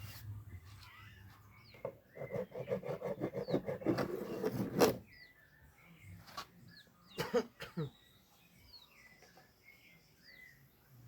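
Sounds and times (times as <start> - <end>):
birds chirping faintly: 0.0 - 11.0
rasp scraping wood: 1.8 - 5.0.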